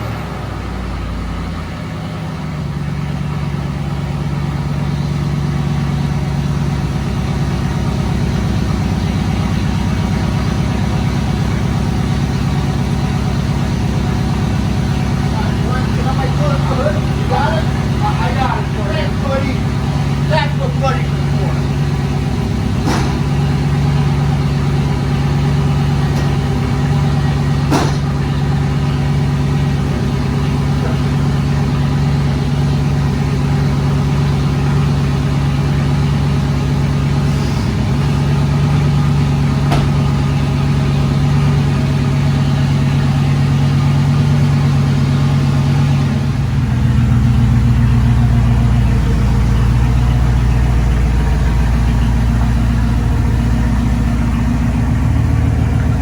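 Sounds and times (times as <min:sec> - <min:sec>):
truck engine running: 0:00.0 - 0:56.0.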